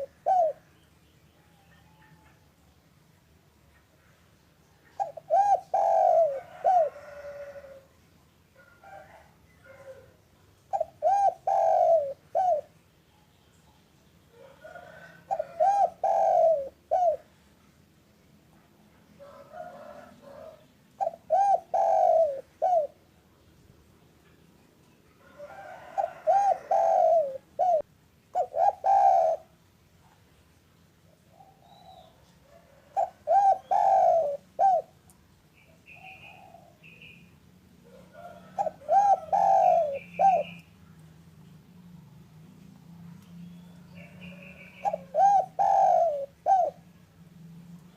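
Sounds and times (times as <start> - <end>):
dove cooing: 0.0 - 0.8, 4.8 - 7.9, 8.6 - 12.8, 14.3 - 17.4, 19.2 - 23.1, 25.2 - 29.6, 31.1 - 35.1, 35.9 - 37.2, 37.8 - 40.6, 43.6 - 47.0.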